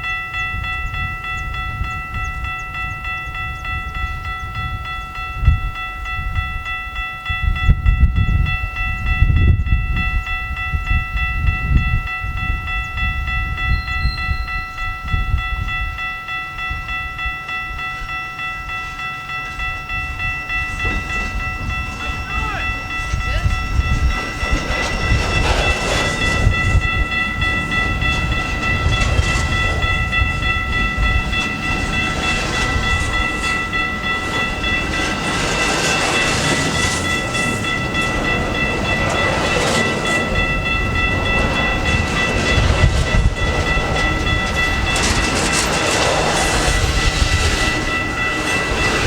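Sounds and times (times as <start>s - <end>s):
diesel locomotive rumble: 0.0s - 49.0s
high whine: 0.0s - 49.0s
wheels clattering over rail joints: 19.0s - 49.0s.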